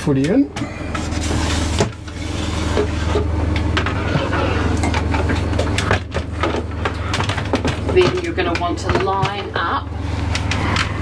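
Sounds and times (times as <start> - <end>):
low mechanical hum: 0.0 - 11.0
window blind scraping in frame: 1.0 - 4.8.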